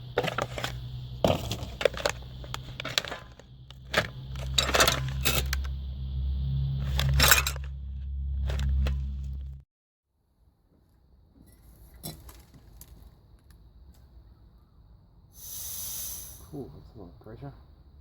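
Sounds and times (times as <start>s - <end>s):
small metal parts clinking: 0.0s - 5.7s, 6.8s - 7.7s, 8.4s - 9.1s
steady low hum: 0.0s - 9.6s.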